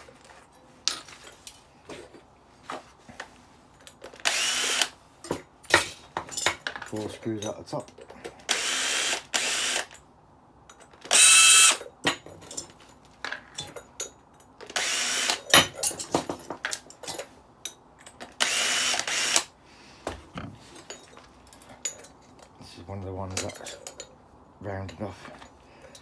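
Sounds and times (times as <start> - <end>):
cordless drill whining: 4.2 - 5.0, 8.5 - 9.9, 11.1 - 11.8, 14.7 - 15.4, 18.4 - 19.5.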